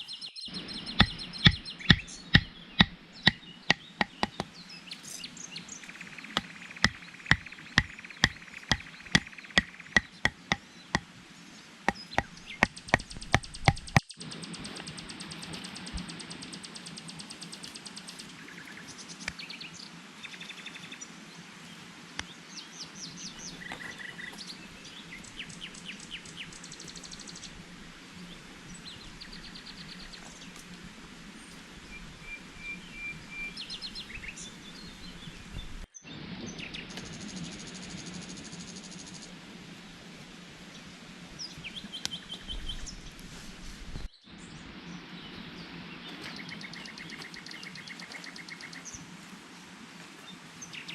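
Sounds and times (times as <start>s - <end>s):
birds chirping in trills: 0.0s - 21.2s
outdoor ambient hiss: 0.0s - 50.9s
sharp knocks: 1.0s - 4.5s, 6.4s - 11.1s, 11.9s - 14.1s.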